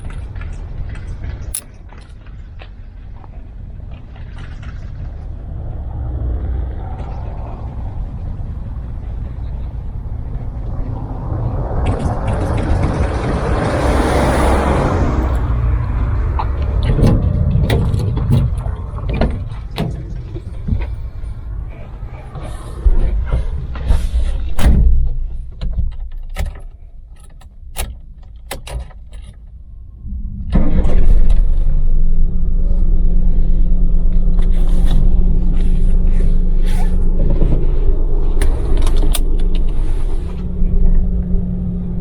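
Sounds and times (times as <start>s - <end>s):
engine idling: 0.0s - 25.5s, 30.1s - 42.0s
clicks and knocks in a vehicle cabin: 16.2s - 21.5s, 22.3s - 29.6s, 34.1s - 41.4s.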